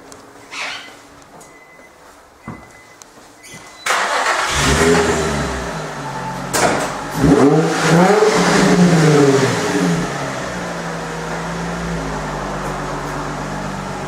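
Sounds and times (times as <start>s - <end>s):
car engine starting and revving: 3.9s - 14.0s.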